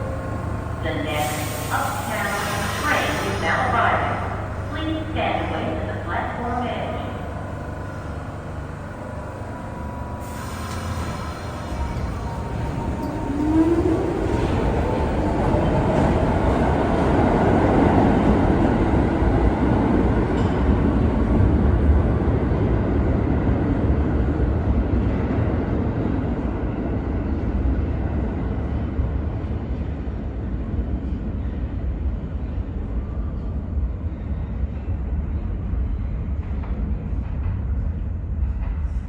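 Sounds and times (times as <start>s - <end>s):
wheels rumbling on rails: 0.0s - 2.0s, 3.1s - 32.8s.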